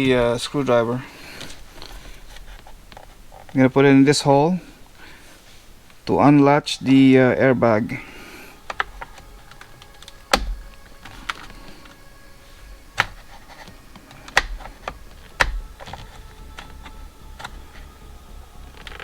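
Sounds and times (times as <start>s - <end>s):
screwdriver clicking in plastic cover: 8.7s - 12.0s, 12.9s - 17.9s.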